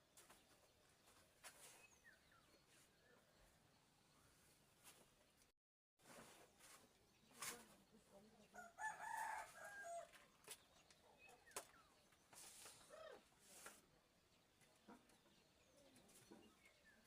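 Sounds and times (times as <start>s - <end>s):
rooster crowing: 8.6s - 10.2s.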